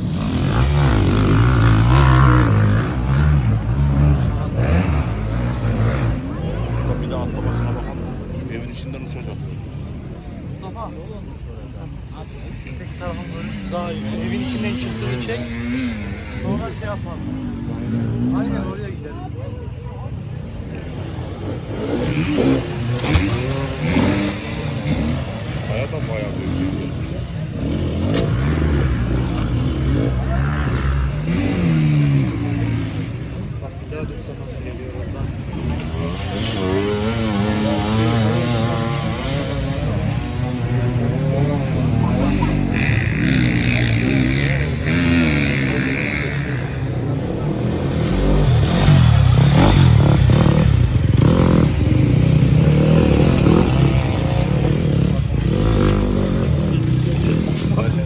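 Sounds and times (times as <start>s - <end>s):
racing engine revving: 0.0s - 8.4s, 20.6s - 33.7s, 34.6s - 58.0s.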